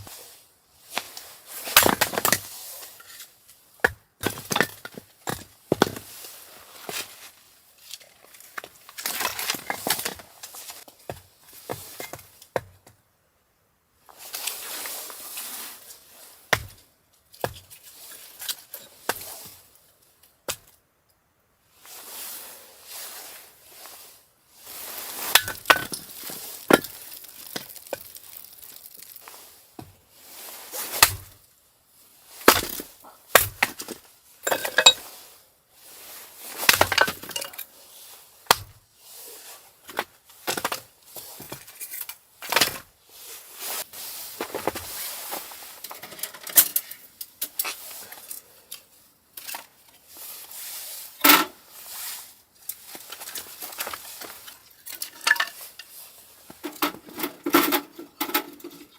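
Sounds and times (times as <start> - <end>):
hard objects clinking and knocking: 25.3 - 29.3, 34.4 - 35.0.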